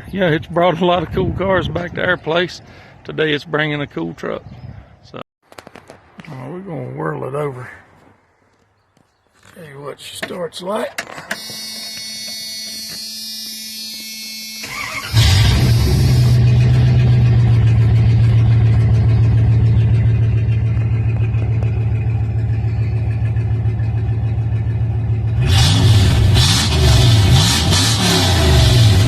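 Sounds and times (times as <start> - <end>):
engine cranking: 14.6 - 29.0
engine idling: 14.6 - 29.0.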